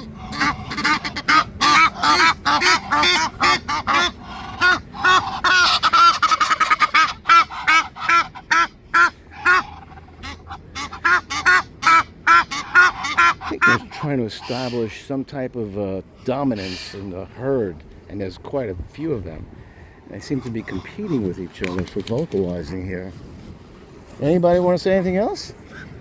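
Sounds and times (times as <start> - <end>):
geese honking: 0.0 - 15.2, 16.2 - 17.3, 20.1 - 21.8.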